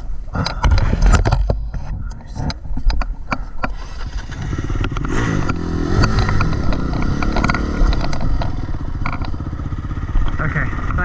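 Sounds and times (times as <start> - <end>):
knocks and clatter: 0.5 - 10.4
dirt bike engine revving: 3.7 - 11.0.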